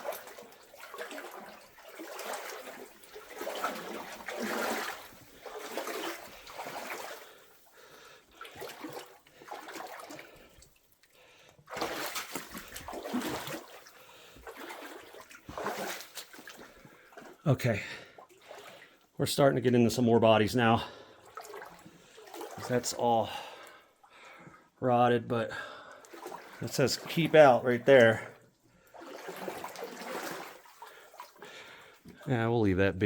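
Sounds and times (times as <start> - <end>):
water splashing from wading: 0.0 - 19.0, 20.9 - 24.2, 26.0 - 32.0.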